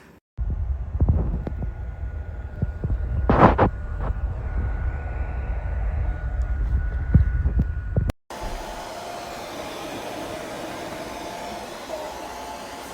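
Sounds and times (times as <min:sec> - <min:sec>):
low rumble: 0:00.4 - 0:08.8
hair dryer running: 0:00.4 - 0:12.9.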